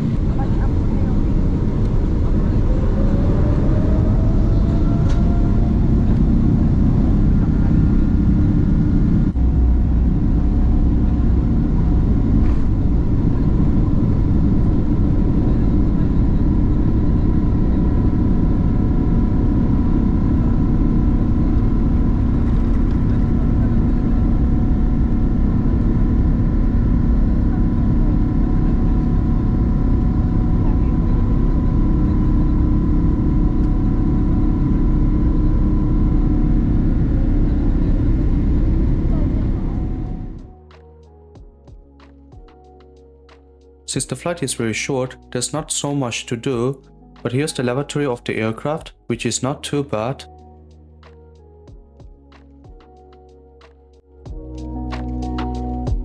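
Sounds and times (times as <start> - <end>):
jet engines rumbling and whining: 0.0 - 41.0.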